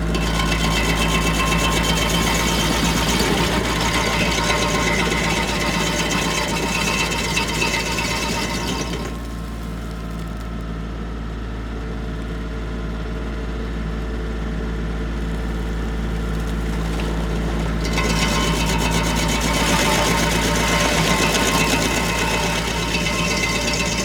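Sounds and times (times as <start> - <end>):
harsh bright grinding noise: 0.0 - 9.8, 17.3 - 24.0
tractor engine humming: 0.0 - 10.4, 15.8 - 24.0.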